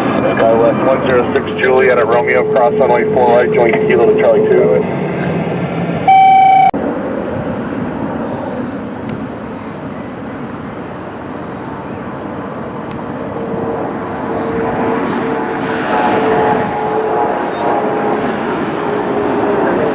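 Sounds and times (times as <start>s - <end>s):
aircraft engines: 0.0s - 19.9s
loud electronic beep: 6.1s - 6.8s.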